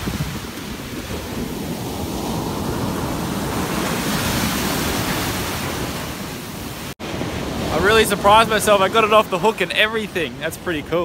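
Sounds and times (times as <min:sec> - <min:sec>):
ocean surf washing on beach: 0:00.0 - 0:11.0.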